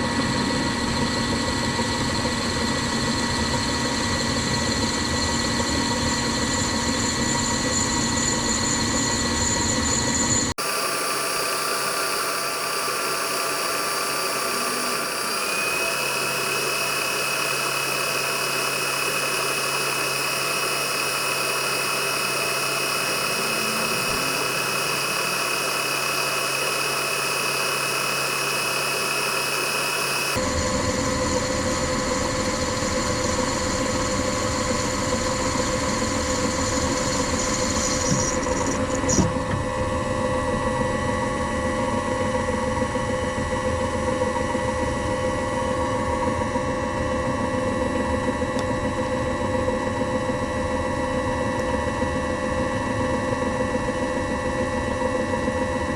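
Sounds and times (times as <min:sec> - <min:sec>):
machine tool motor whining: 0:10.2 - 0:30.5, 0:35.2 - 0:39.7.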